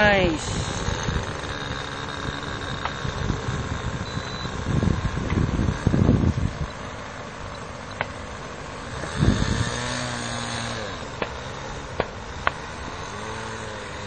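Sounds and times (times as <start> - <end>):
sharp ticks: 0.0 - 6.8, 7.5 - 8.2, 11.1 - 12.8
model plane engine running: 0.0 - 14.0.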